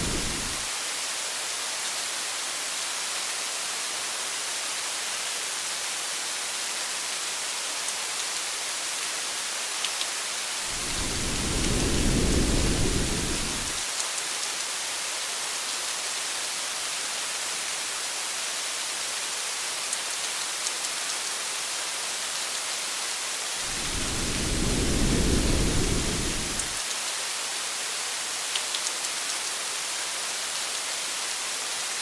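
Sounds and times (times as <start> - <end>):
low roll of thunder: 0.0 - 0.6, 10.7 - 13.8, 23.6 - 26.8
rain hissing: 0.0 - 0.7, 10.5 - 13.9, 23.5 - 26.9
faint raindrop ticks: 9.8 - 10.1, 10.7 - 14.7, 19.8 - 21.4, 28.4 - 29.6.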